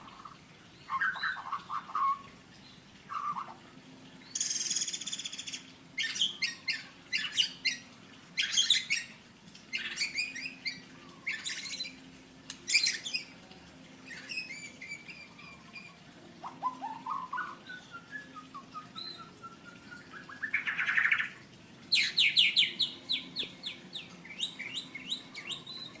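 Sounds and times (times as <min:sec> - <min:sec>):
bird singing whistles and chatter: 0:12.7 - 0:13.3, 0:14.0 - 0:21.3, 0:21.9 - 0:26.0.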